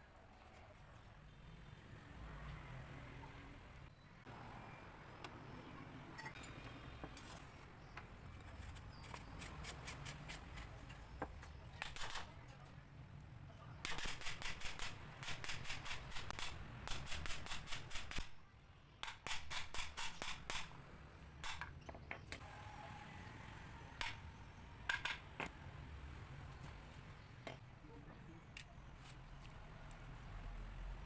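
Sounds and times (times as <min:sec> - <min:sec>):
faint background noise: 0:00.0 - 0:31.0.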